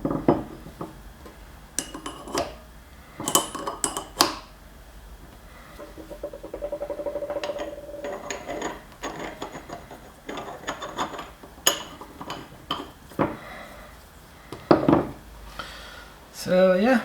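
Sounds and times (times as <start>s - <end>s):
metal clinks and knocks: 1.8s - 2.6s, 3.2s - 4.4s, 5.8s - 13.4s
metal parts ticking and rubbing: 5.8s - 13.3s.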